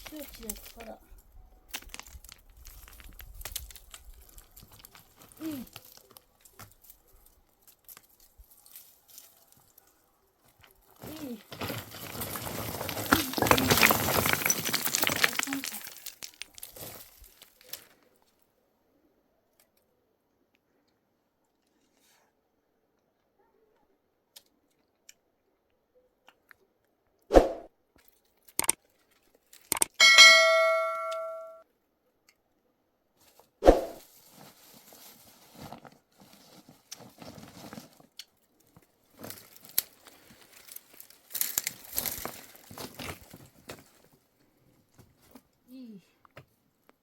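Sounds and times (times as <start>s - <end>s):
clattering and rustling of handling: 0.0s - 18.4s, 33.2s - 45.6s
metal object ringing like a bell: 30.0s - 31.6s.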